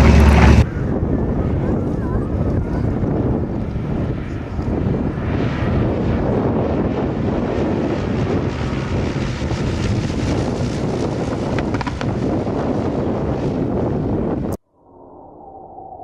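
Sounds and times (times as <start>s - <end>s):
aircraft engine: 0.0s - 14.6s
wind noise on microphone: 0.0s - 16.0s.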